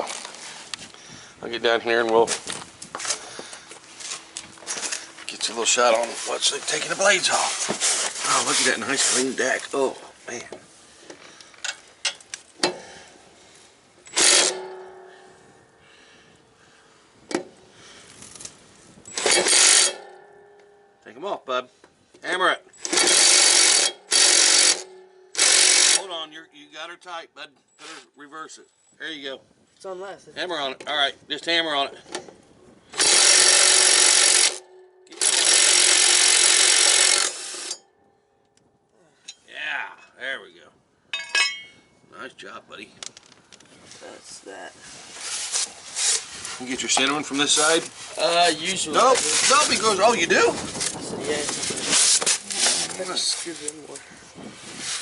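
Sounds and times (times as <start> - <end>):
impact wrench hammering: 14.1 - 15.3, 19.1 - 21.0, 22.8 - 26.1, 33.0 - 37.9
power tool motor whine: 33.0 - 34.6.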